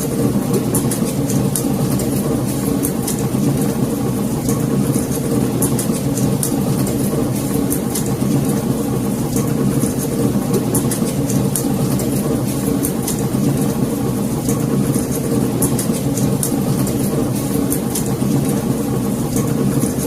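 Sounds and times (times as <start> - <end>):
fire roaring: 0.0 - 20.0
fire crackling and popping: 0.2 - 20.0.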